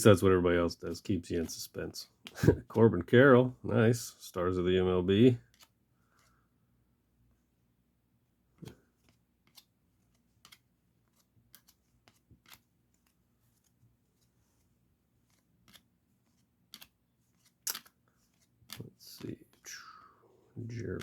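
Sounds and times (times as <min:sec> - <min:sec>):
trading cards clicking and snapping: 0:05.5 - 0:05.7, 0:09.0 - 0:09.7, 0:10.4 - 0:13.1, 0:15.3 - 0:15.9, 0:16.7 - 0:19.6.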